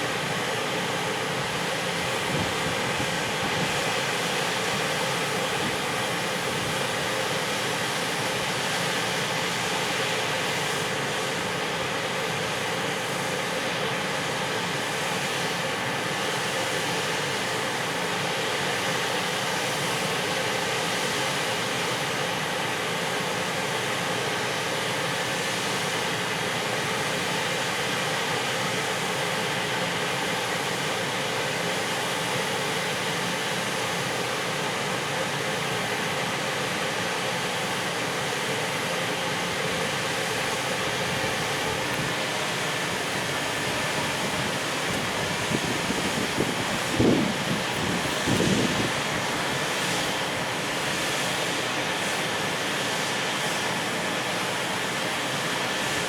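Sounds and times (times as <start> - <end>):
freight train passing: 40.6 - 52.4.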